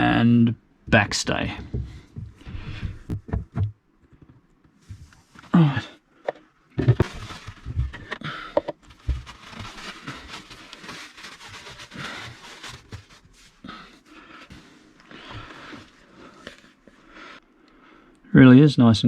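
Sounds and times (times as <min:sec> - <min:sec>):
low thumps: 0:01.6 - 0:05.1
scraping and rustling: 0:06.8 - 0:16.9.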